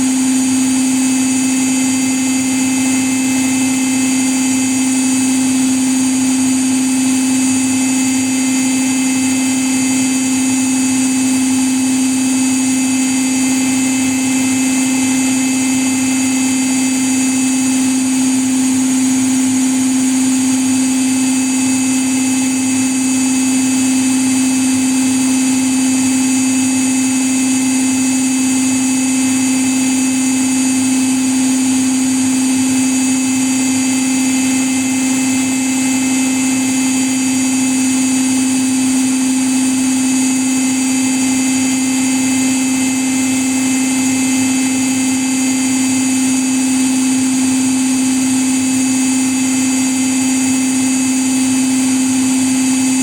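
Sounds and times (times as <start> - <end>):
washing machine spinning: 0.0 - 53.0.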